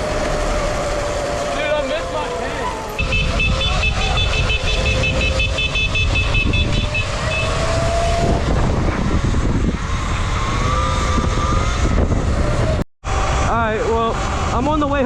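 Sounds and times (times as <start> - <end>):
road noise: 0.0 - 15.0
wind rushing over microphone: 2.7 - 15.0.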